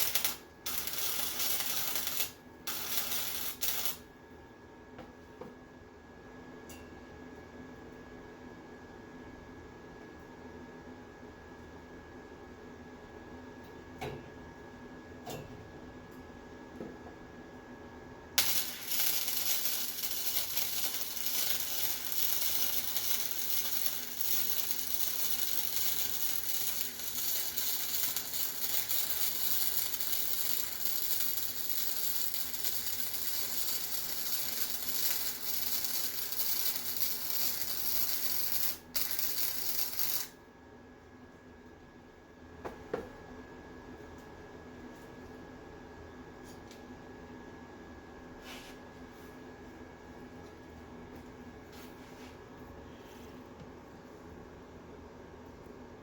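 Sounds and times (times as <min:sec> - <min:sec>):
welding arc crackling: 0:00.0 - 0:04.0, 0:18.4 - 0:40.4.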